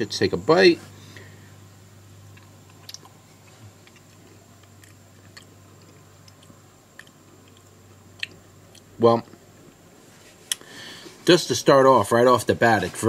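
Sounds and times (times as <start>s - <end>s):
wet mouth clicks: 2.3s - 8.9s, 10.5s - 10.7s
person faintly chewing: 2.3s - 9.4s.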